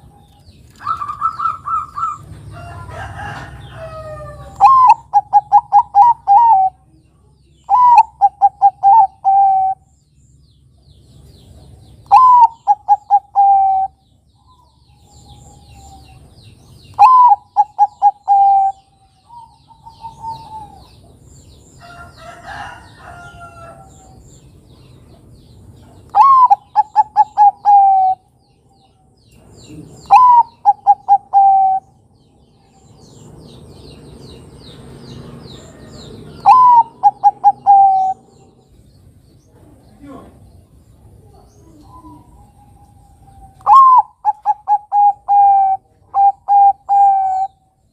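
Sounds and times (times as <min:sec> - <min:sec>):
dove cooing: 0:00.8 - 0:02.3, 0:03.2 - 0:06.9, 0:07.7 - 0:09.8, 0:12.1 - 0:16.3, 0:16.9 - 0:21.1, 0:26.1 - 0:28.3, 0:29.6 - 0:32.0, 0:35.7 - 0:38.6, 0:41.2 - 0:47.6.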